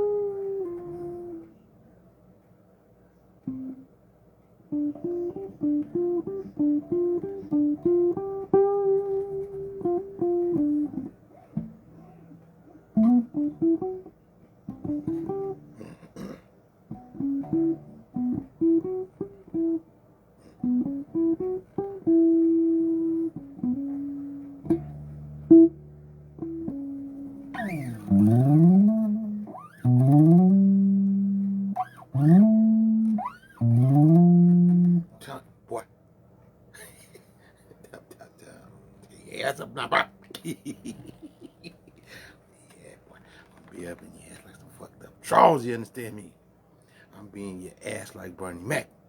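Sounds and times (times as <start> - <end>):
bass guitar plucked notes: 0.0 - 1.4, 4.7 - 11.8, 12.9 - 14.1, 14.7 - 16.0, 16.9 - 19.8, 20.6 - 35.3.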